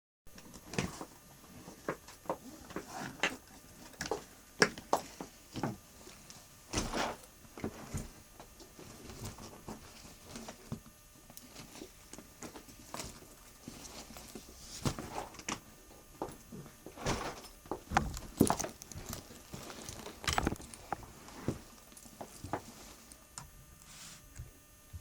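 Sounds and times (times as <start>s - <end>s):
rustling of handled things: 0.3s - 24.4s
objects knocking and clicking: 16.2s - 22.7s.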